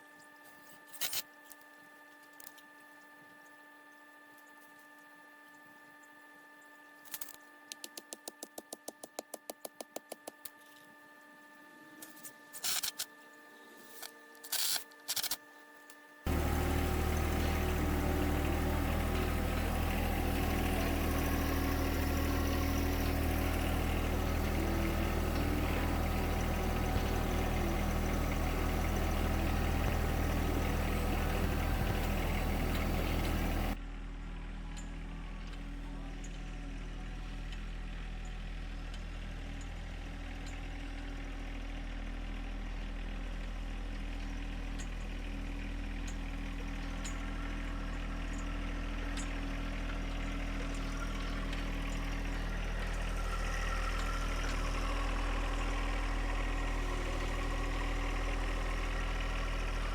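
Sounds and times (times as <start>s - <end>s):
concrete mixer running: 16.3s - 33.8s, 46.3s - 59.9s.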